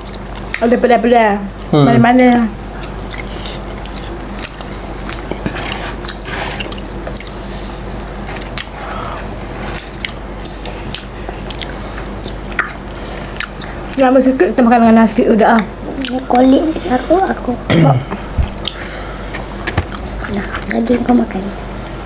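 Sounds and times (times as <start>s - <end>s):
chewing crispy fried chicken: 0.0s - 0.7s, 2.6s - 14.6s, 18.5s - 18.9s.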